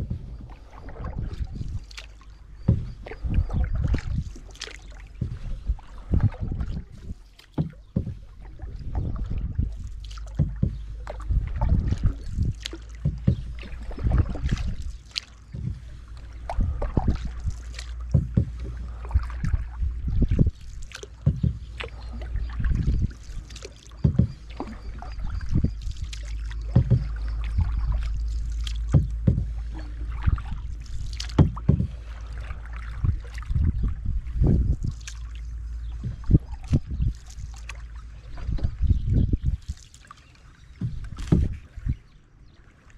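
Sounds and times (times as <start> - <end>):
low rumble: 0.0 - 39.7
paddle strokes in water: 0.0 - 42.9
water splashes: 0.0 - 42.9
sharp knocks: 7.6 - 8.2, 10.4 - 10.9, 13.0 - 13.7, 18.1 - 18.8, 21.3 - 21.8, 24.0 - 24.6, 26.7 - 27.8, 28.9 - 29.6, 31.3 - 32.0.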